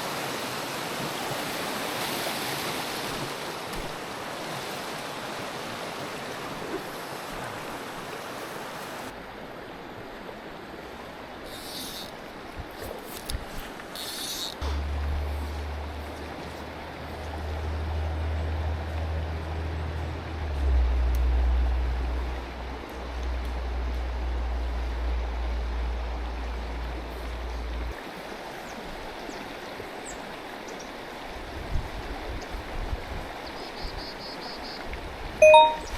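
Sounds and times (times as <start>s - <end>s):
water rushing over rocks: 0.0s - 9.3s
stream water rushing: 0.0s - 35.9s
low rumble: 14.6s - 19.2s.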